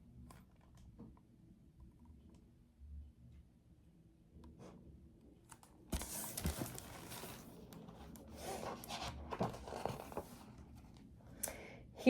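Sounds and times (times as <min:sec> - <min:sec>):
paper pages rustling: 0:05.9 - 0:10.6.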